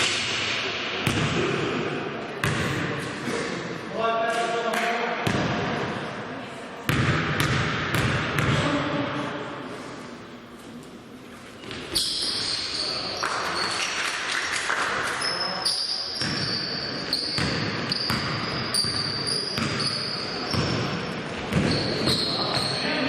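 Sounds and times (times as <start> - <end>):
players' voices: 0.0 - 7.0, 8.3 - 17.7
shoes squeaking on floor: 11.6 - 14.0, 15.2 - 23.0.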